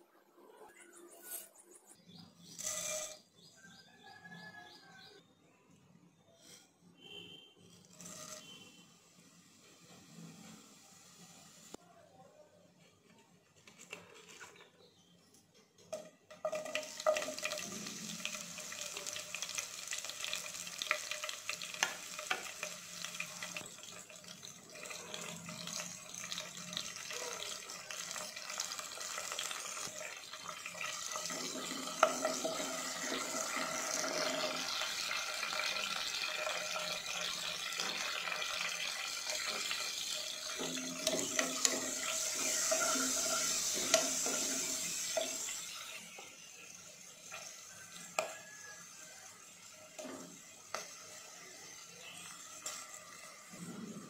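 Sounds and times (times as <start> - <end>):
spices sizzling in hot oil: 2.4 - 3.6, 7.8 - 11.8, 15.9 - 54.0
ladle stirring: 39.3 - 45.5.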